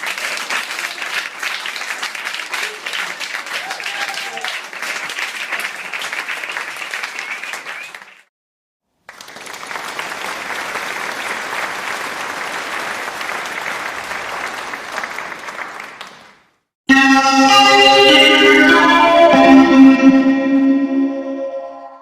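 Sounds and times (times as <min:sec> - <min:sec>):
crowd applause: 0:00.0 - 0:08.3, 0:09.0 - 0:16.5.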